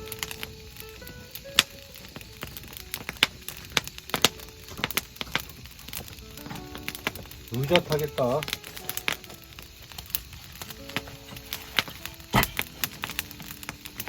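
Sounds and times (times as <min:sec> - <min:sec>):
faint musical tones: 0:00.0 - 0:14.0
wood fire crackling: 0:00.0 - 0:14.0
man's voice: 0:07.5 - 0:08.5.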